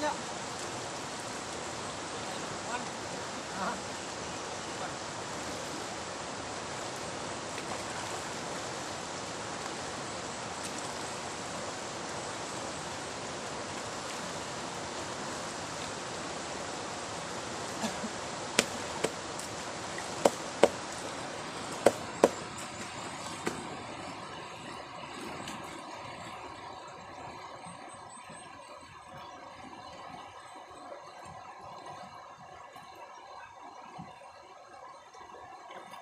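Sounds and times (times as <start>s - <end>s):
river water rushing: 0.0s - 27.5s.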